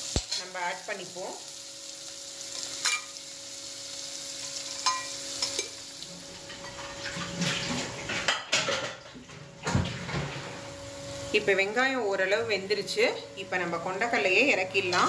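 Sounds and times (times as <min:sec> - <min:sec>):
onions sizzling in oil: 0:00.0 - 0:07.4, 0:10.6 - 0:12.0.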